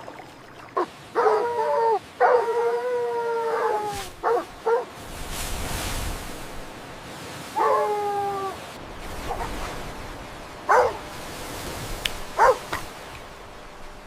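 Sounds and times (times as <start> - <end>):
puppies barking: 3.5 - 4.9, 10.7 - 11.1, 12.4 - 12.8.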